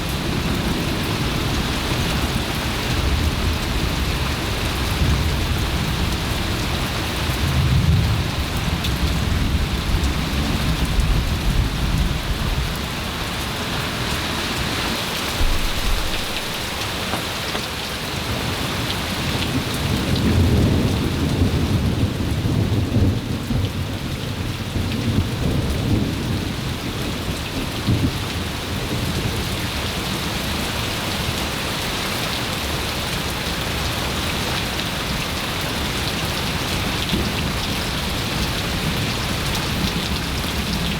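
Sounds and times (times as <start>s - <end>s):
heavy rain falling: 0.0s - 40.9s
thunder rumbling: 15.4s - 17.5s.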